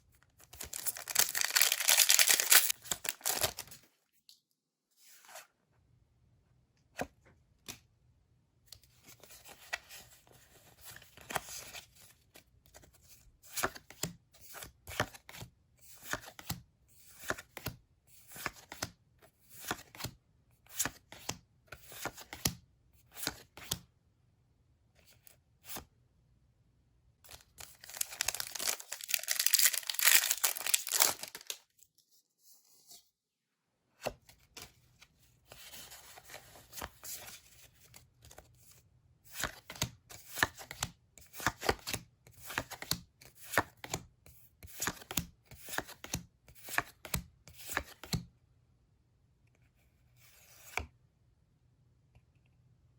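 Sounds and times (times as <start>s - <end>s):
packaging tearing: 0.6s - 3.7s, 27.6s - 31.6s
packaging rustling and snapping: 0.6s - 3.8s, 27.3s - 31.6s.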